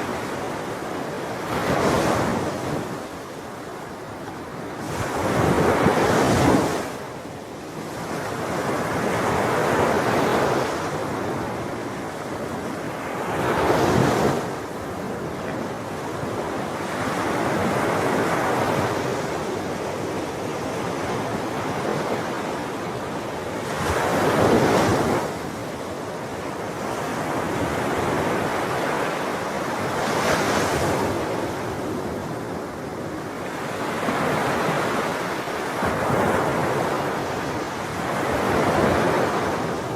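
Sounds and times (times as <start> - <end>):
sea waves breaking: 16.6 - 39.9.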